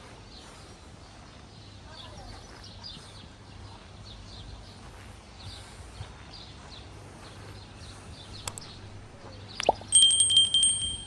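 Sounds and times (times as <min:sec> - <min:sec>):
small birds chirping: 0:00.2 - 0:11.0
low steady hum: 0:08.4 - 0:11.0.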